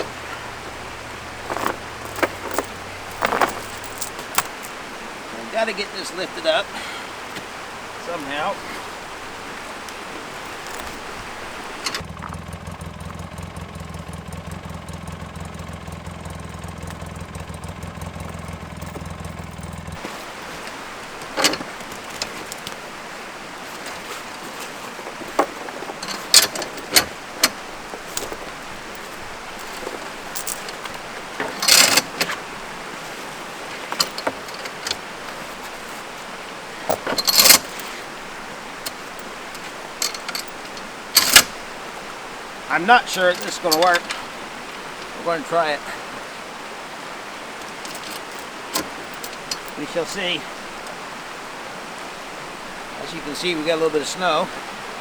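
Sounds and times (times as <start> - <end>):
sharp metal clicks and knocks: 0.0 - 4.8, 9.9 - 12.4, 15.6 - 20.0, 25.2 - 32.5, 33.6 - 35.9, 36.8 - 38.1, 38.7 - 41.7, 43.1 - 45.2, 47.6 - 49.9
four-wheeler engine idling: 0.0 - 55.0.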